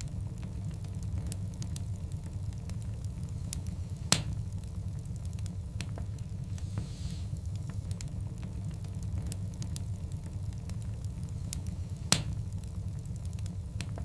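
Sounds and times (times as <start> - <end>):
wood fire crackling: 0.0 - 14.0
loud pop from fire: 4.0 - 4.4, 11.6 - 12.4.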